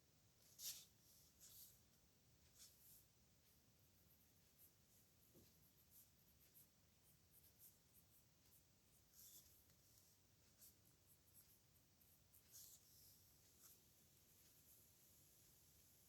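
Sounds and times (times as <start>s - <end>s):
pen scratching on paper: 2.5s - 14.9s.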